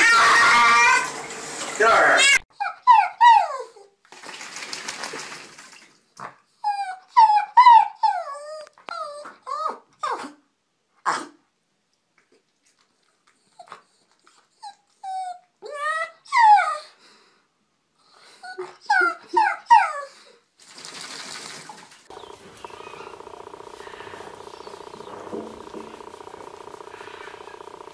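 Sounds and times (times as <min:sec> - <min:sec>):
dog whining: 0:02.2 - 0:03.9, 0:06.6 - 0:10.4, 0:14.6 - 0:17.0, 0:18.4 - 0:20.3, 0:22.1 - 0:27.9
steady hum: 0:22.1 - 0:27.9.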